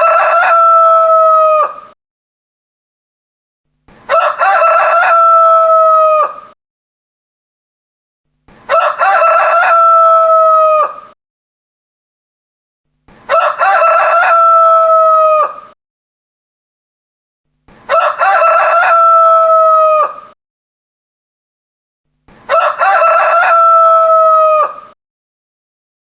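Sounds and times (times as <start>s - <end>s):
rooster crowing: 0.0s - 2.0s, 4.1s - 6.6s, 8.7s - 11.2s, 13.3s - 15.8s, 17.9s - 20.4s, 22.5s - 25.0s.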